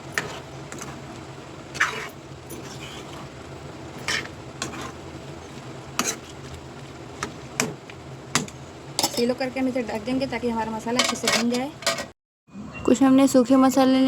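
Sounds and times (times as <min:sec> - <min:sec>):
steady low hum: 0:00.0 - 0:11.2
metal spoon scraping a pan: 0:00.1 - 0:01.0, 0:01.7 - 0:03.4, 0:04.0 - 0:06.4, 0:11.0 - 0:12.1.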